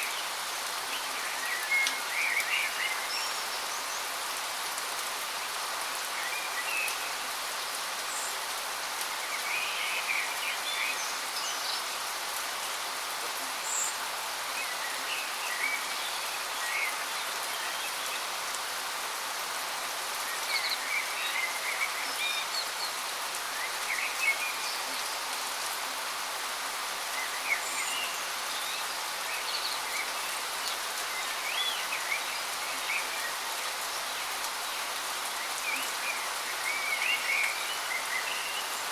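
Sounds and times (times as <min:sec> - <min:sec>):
small birds chirping: 0:26.9 - 0:38.9.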